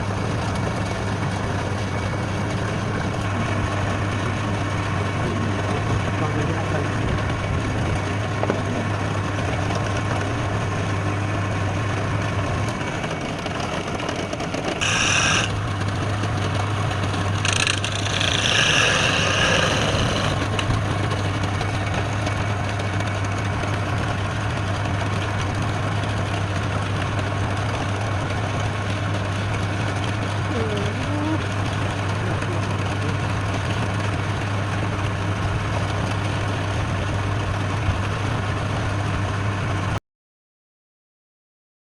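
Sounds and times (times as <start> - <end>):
wood lathe humming: 12.4 - 22.4.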